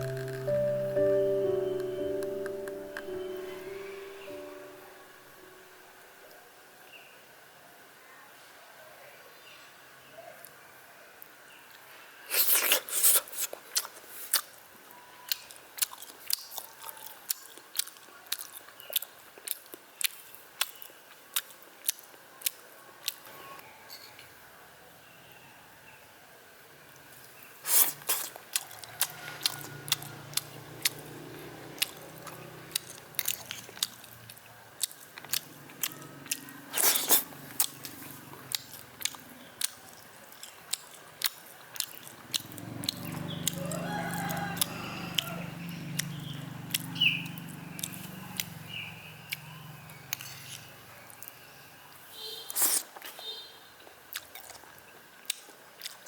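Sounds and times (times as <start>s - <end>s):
rooster crowing: 28.6s - 30.8s, 43.4s - 45.9s.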